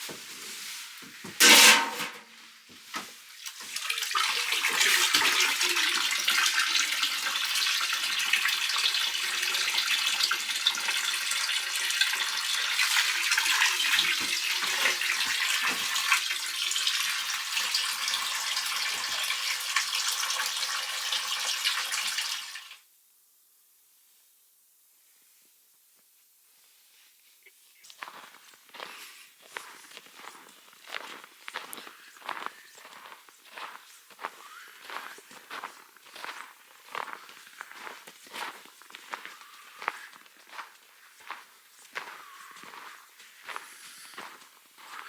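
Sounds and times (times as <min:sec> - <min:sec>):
water pouring into container: 0:03.4 - 0:22.8.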